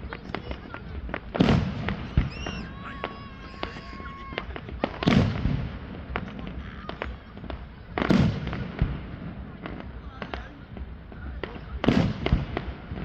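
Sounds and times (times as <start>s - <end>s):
firework cracks and pops: 0.0s - 13.0s
loud firework bangs: 0.0s - 13.0s
high firework whistle: 1.4s - 5.6s.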